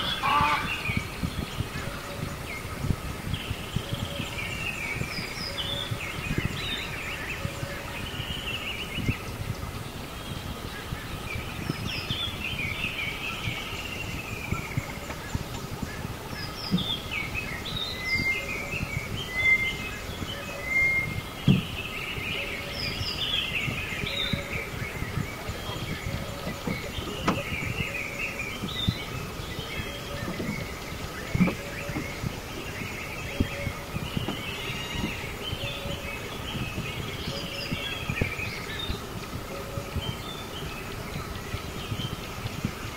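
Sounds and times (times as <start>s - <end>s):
small birds chirping: 0.0s - 42.9s
dull knocks: 21.4s - 21.8s, 26.4s - 27.5s.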